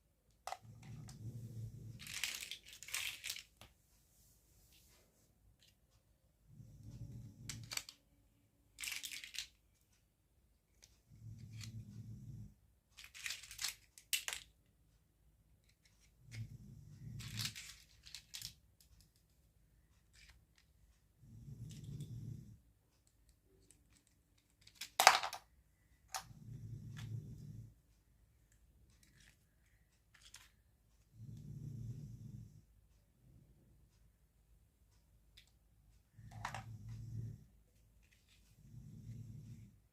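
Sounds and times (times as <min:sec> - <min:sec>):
small clicks of toy parts: 0:02.0 - 0:03.7, 0:07.4 - 0:08.0, 0:08.7 - 0:10.0, 0:13.0 - 0:14.7, 0:15.6 - 0:20.8, 0:23.0 - 0:25.5, 0:28.5 - 0:30.6.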